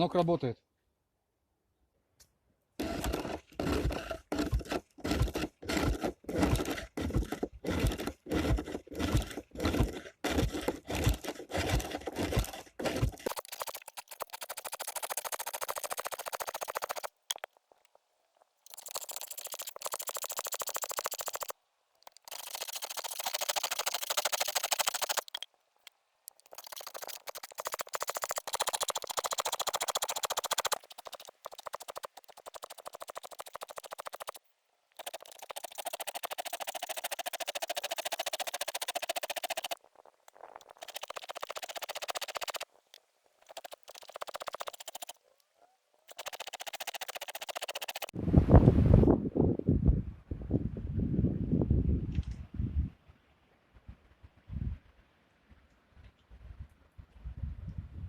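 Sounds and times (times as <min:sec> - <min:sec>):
turning tool scraping wood: 0:02.8 - 0:17.8, 0:18.4 - 0:25.5, 0:26.3 - 0:45.2, 0:46.1 - 0:48.2
lathe rhythmic strokes: 0:22.2 - 0:25.4, 0:26.4 - 0:34.4, 0:35.0 - 0:39.8, 0:40.6 - 0:42.7, 0:43.4 - 0:45.2, 0:46.1 - 0:48.2.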